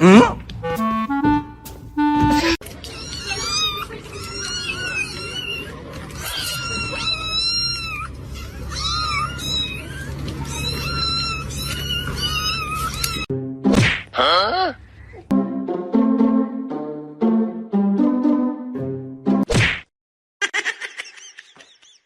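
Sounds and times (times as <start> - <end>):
cat meowing: 2.8 - 13.3.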